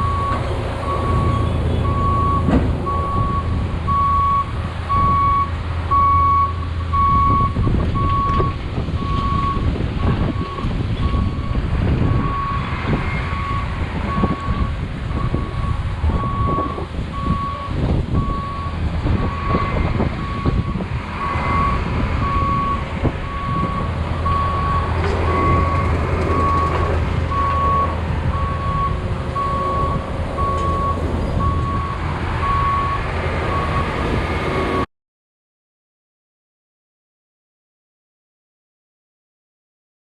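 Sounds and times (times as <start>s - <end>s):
backup alarm beeping: 0.0s - 9.6s, 13.3s - 33.9s
diesel engine running: 0.0s - 34.9s.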